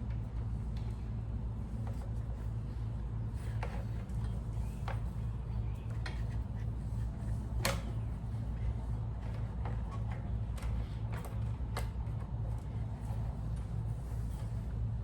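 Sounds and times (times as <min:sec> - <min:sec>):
steady low hum: 0:00.0 - 0:15.0
light clicks and taps of tools: 0:07.6 - 0:08.0.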